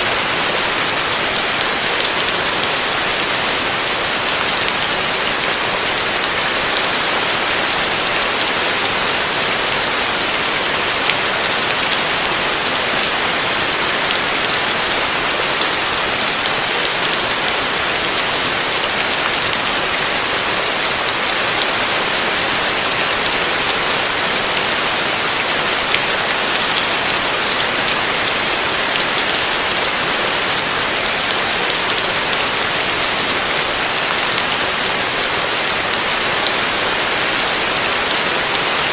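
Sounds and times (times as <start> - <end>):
heavy rain on a roof: 0.0 - 38.9.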